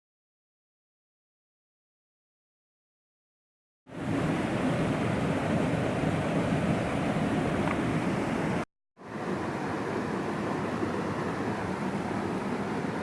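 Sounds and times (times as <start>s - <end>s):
mountain stream rushing: 3.9s - 13.0s.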